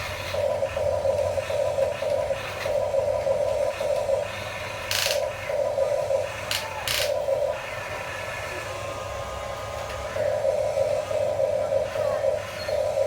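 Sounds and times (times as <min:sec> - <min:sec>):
toy electric motors whirring: 0:00.0 - 0:13.0
sharp clicks: 0:06.5 - 0:07.2.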